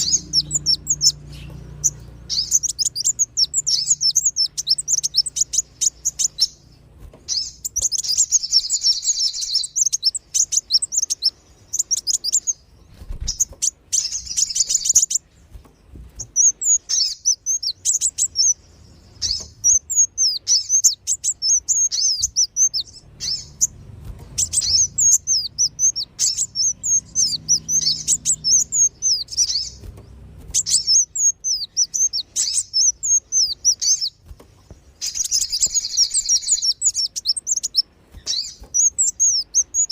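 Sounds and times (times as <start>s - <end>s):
sunbirds chirping: 0.0s - 39.9s.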